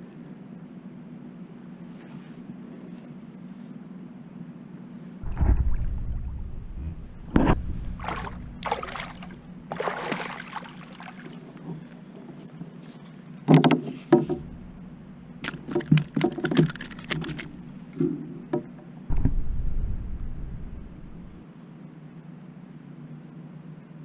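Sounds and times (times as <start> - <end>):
steady low hum: 5.2 - 11.3, 14.2 - 21.4
water splashing around kayak: 5.2 - 18.5.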